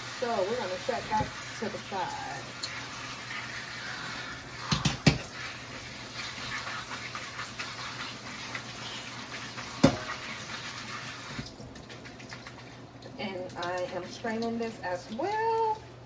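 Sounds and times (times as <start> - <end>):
sink water hissing: 0.0 - 15.8
sharp knocks in sink: 4.7 - 5.3, 9.8 - 10.2.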